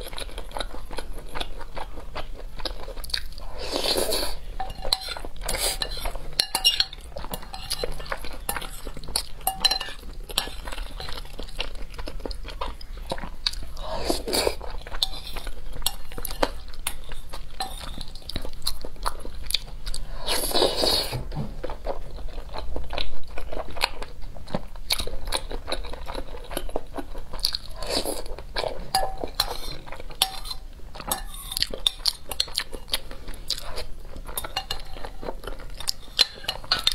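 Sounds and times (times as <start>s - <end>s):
chewing and crunching rice: 0.0s - 36.9s
metal spoon scraping glass bowl: 4.6s - 8.8s, 9.4s - 11.2s.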